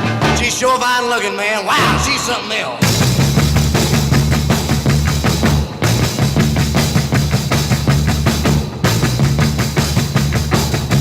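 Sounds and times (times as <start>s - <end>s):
drum kit driving beat: 0.0s - 0.8s, 1.8s - 11.0s
electric guitar: 1.8s - 11.0s
walking bass line: 1.8s - 11.0s.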